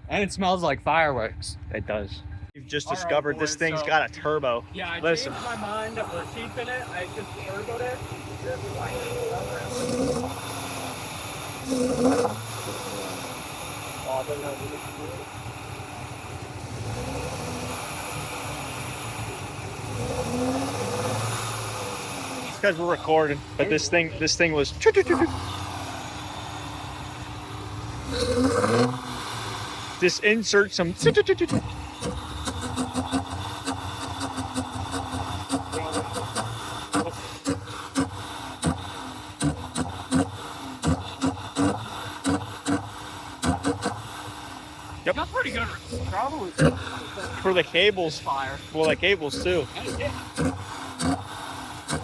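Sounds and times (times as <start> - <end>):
car engine misfiring and revving: 3.5 - 52.0
engine misfire pops: 28.1 - 45.3, 48.7 - 52.0.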